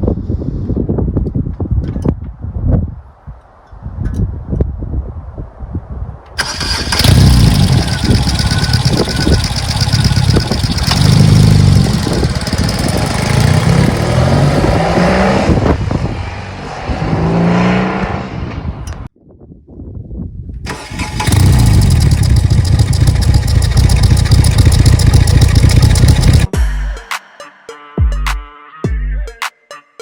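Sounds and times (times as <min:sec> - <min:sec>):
motorcycle engine revving: 0:06.4 - 0:18.5, 0:20.7 - 0:26.5.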